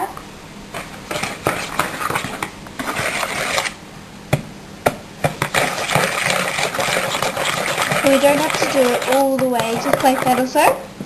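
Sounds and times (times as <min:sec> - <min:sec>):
utensil scraping a bowl: 0:00.8 - 0:03.8, 0:05.4 - 0:10.8.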